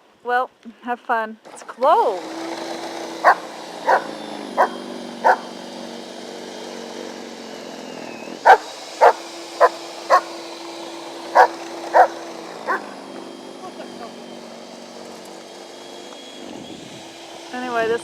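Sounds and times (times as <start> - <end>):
snow blower engine running: 1.4 - 18.0
dog barking: 3.2 - 5.5, 8.4 - 10.3, 11.3 - 12.9.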